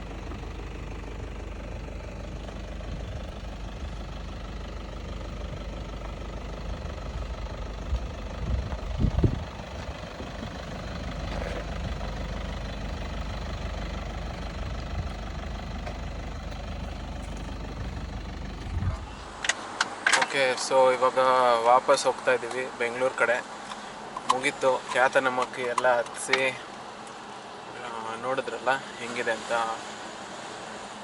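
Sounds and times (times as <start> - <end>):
vehicle engine rumbling: 0.0 - 31.0
heavy low thumps: 7.8 - 10.6.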